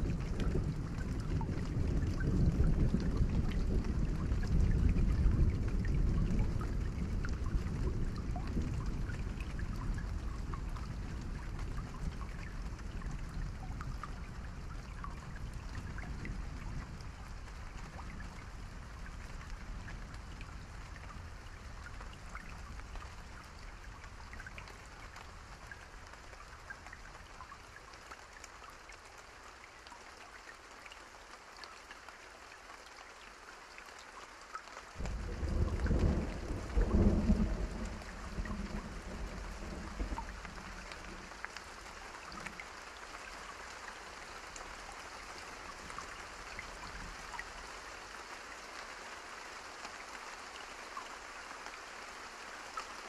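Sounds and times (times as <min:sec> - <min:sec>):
steady rain falling: 0:00.0 - 0:53.0
loud thunder: 0:35.0 - 0:40.8.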